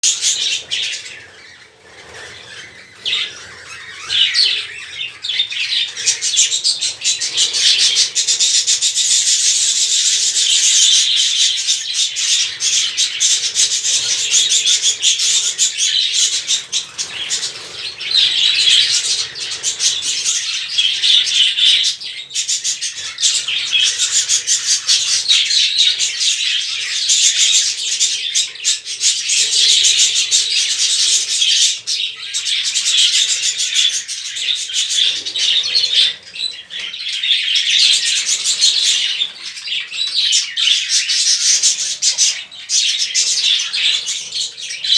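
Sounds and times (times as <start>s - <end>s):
budgerigars chattering and chirping: 0.0s - 44.9s.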